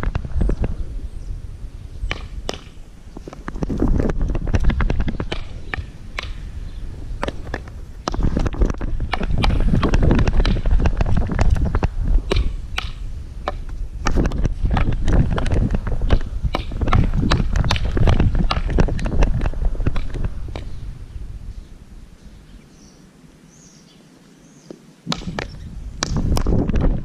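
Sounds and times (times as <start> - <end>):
wind buffeting microphone: 0.0 - 23.2, 25.0 - 27.0
sharp clicks and knocks: 7.2 - 20.7.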